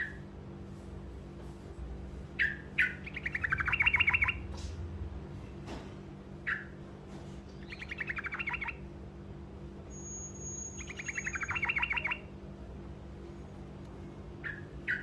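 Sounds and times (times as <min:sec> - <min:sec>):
bird singing trilled phrases: 0:02.4 - 0:04.4, 0:06.4 - 0:06.8, 0:07.6 - 0:08.9, 0:09.9 - 0:12.4, 0:14.4 - 0:15.0.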